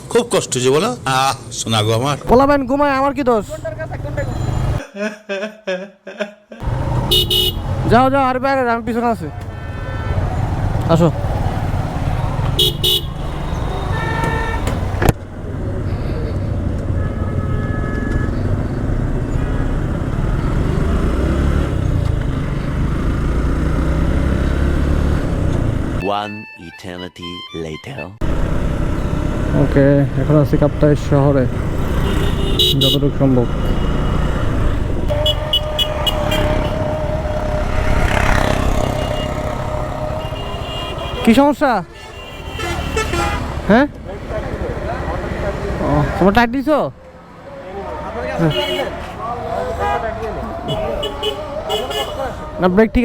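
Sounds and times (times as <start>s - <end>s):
motorcycle engine and road rumble: 2.0s - 4.8s, 6.6s - 26.0s, 28.2s - 53.0s
vehicle horn: 7.0s - 7.9s, 9.4s - 10.5s, 12.4s - 15.1s, 16.9s - 19.9s, 31.6s - 43.7s, 48.4s - 52.5s.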